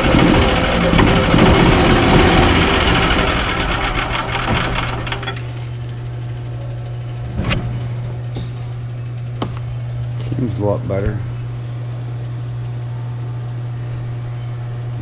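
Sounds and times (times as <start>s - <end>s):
golf cart engine running: 0.0s - 5.3s
steady low hum: 0.0s - 15.0s.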